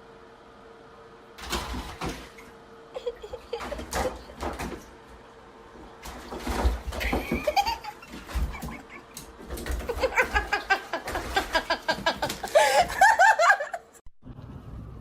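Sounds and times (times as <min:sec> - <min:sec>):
person laughing: 0:02.9 - 0:04.4, 0:07.0 - 0:14.0.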